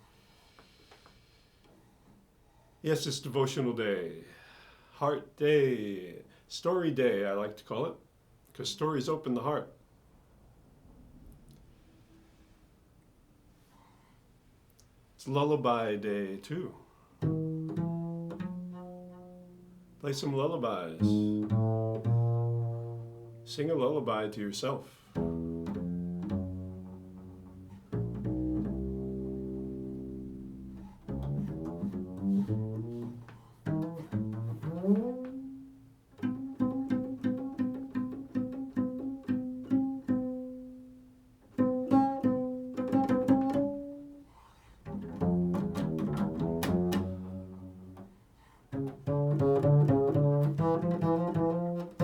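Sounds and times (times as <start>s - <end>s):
plucked string instrument: 17.2s - 19.8s, 21.0s - 23.5s, 25.2s - 40.9s, 41.5s - 44.2s, 44.8s - 48.1s, 48.7s - 52.0s.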